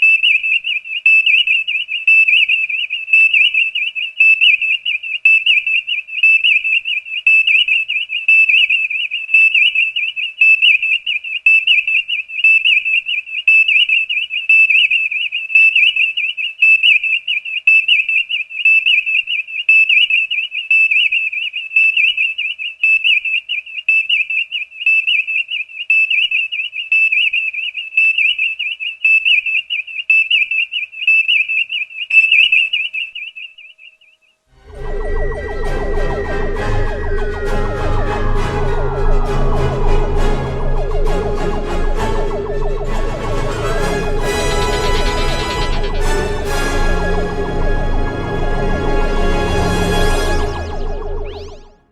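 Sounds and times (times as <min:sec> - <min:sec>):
electronic warbling tone: 0:34.6 - 0:51.9.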